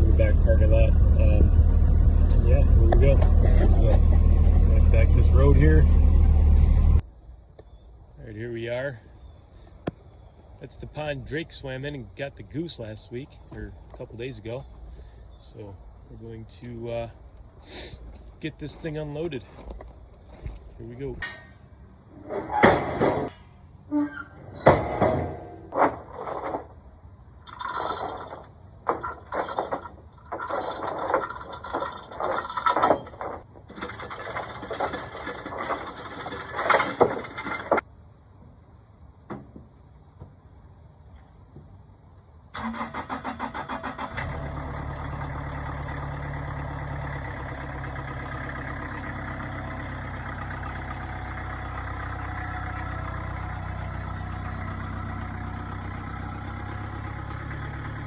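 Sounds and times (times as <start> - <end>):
diesel engine cranking and idling: 0.0 - 7.0, 27.4 - 37.9, 42.5 - 58.0
metal clanking and scraping: 2.3 - 5.8, 22.2 - 26.8, 27.4 - 37.8.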